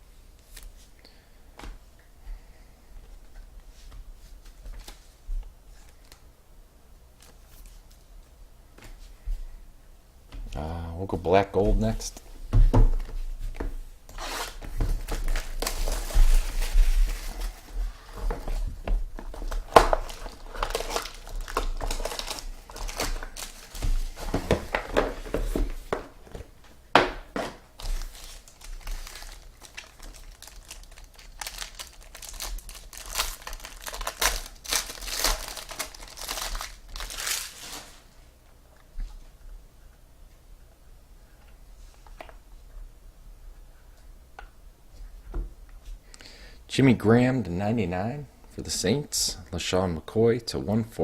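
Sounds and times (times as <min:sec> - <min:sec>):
plastic wrapping crinkling and tearing: 0:14.1 - 0:25.7, 0:27.7 - 0:38.1.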